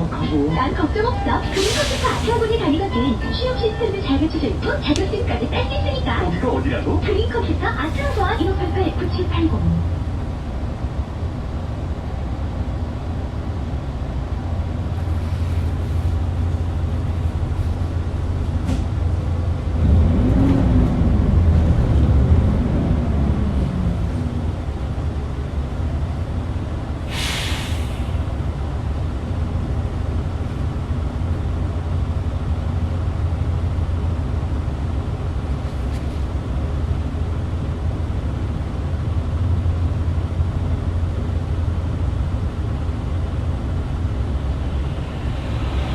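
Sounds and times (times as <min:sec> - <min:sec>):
bus engine droning: 0:00.0 - 0:45.9
air brake hiss: 0:01.4 - 0:02.6, 0:27.1 - 0:28.3.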